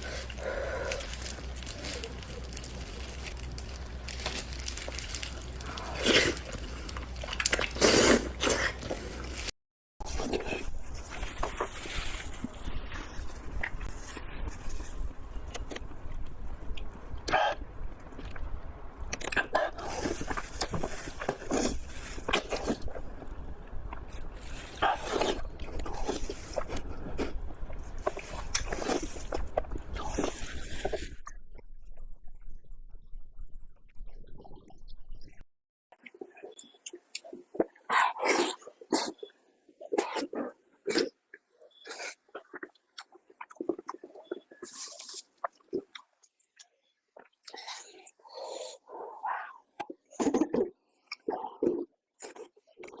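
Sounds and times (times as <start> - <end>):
biting and slurping: 0.0 - 17.6, 19.1 - 23.1, 23.9 - 31.9, 36.0 - 53.0
wet chewing clicks: 39.9 - 48.7.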